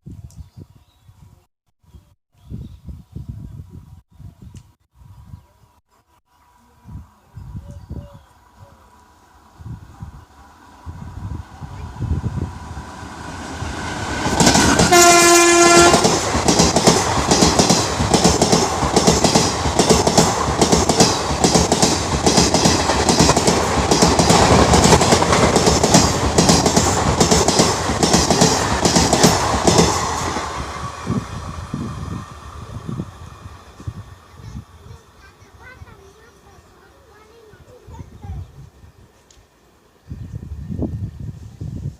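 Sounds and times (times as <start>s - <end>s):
train wheels clattering over rails: 13.4s - 30.7s
train horn blast: 14.6s - 16.2s.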